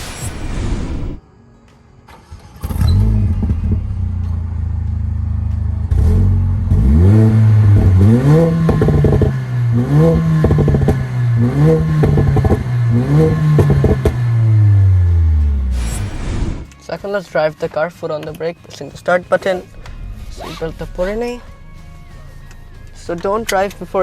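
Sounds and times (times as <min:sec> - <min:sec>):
car engine starting: 0:02.0 - 0:16.7, 0:19.4 - 0:24.0
car engine idling: 0:02.2 - 0:16.7, 0:19.4 - 0:24.0
car engine revving: 0:02.2 - 0:16.7, 0:19.7 - 0:24.0.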